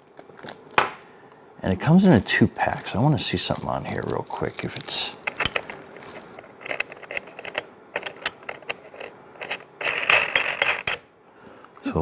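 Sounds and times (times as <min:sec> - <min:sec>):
metal parts scraping: 0:02.0 - 0:11.1
small metal parts clinking: 0:02.6 - 0:11.0.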